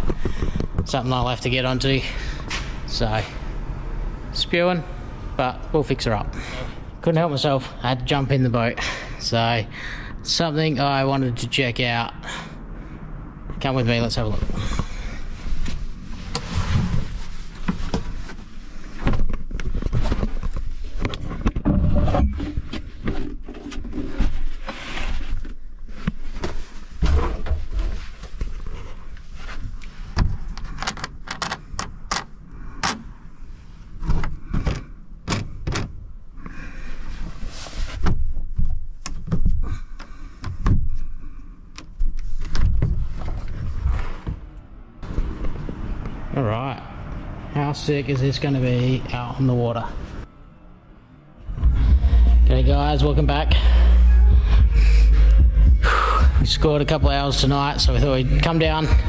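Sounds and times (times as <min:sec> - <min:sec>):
knocks thuds and clicks: 0:34.1 - 0:36.0.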